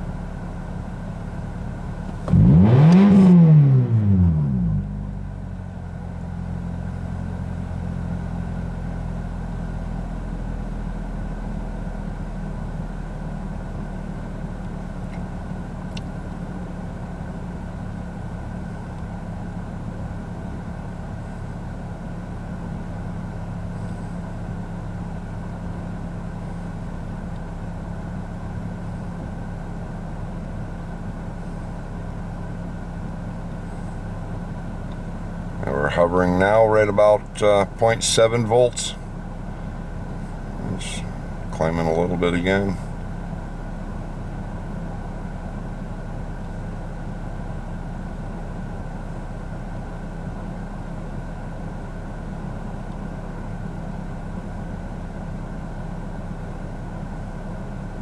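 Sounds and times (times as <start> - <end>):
car engine running: 0.0 - 58.0.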